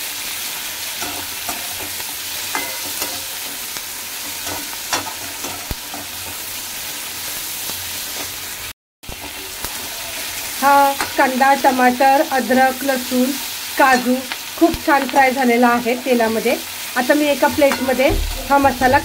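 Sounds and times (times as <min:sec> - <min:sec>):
vegetables sizzling in oil: 0:00.0 - 0:19.0
metal spatula scraping pan: 0:17.3 - 0:19.0.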